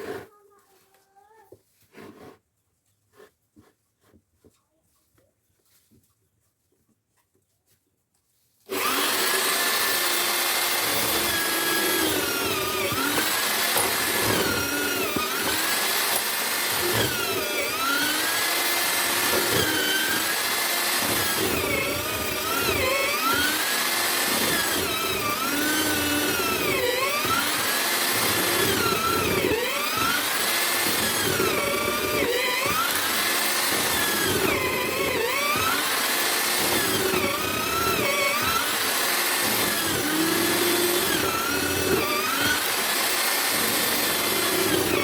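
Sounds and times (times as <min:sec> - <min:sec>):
mortising machine cutting wood: 0:08.7 - 0:45.0.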